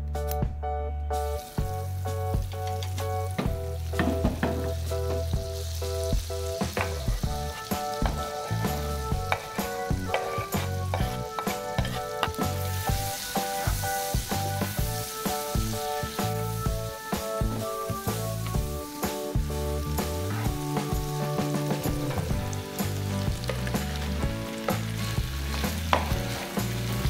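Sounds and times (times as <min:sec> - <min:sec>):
background music: 0:00.0 - 0:27.0
butter sizzling in a frying pan: 0:01.4 - 0:27.0
wooden spatula stirring: 0:07.6 - 0:12.9.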